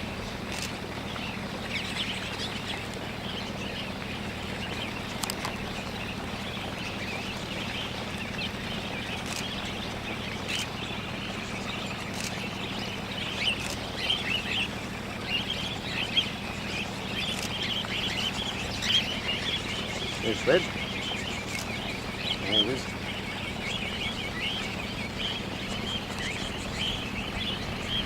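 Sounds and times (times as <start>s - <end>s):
steady low hum: 0.0s - 28.0s
cockatiels chirping and calling: 17.3s - 28.0s.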